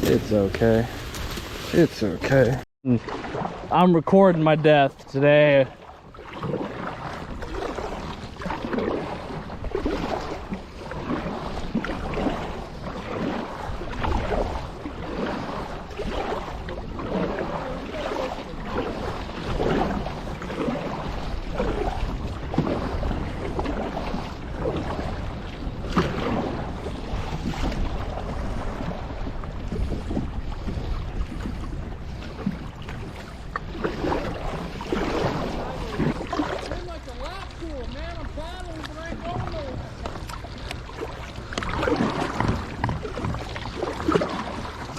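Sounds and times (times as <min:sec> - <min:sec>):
water splashing against a kayak: 0:00.0 - 0:44.9
wind buffeting the microphone: 0:06.4 - 0:44.9.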